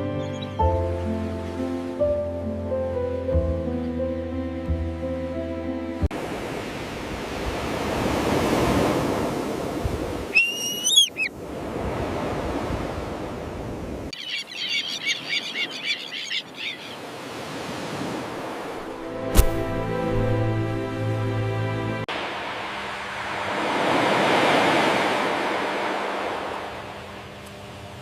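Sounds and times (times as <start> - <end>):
surf washing: 6.1 - 14.1, 16.8 - 28.0
terns calling: 10.3 - 11.3, 14.1 - 17.2.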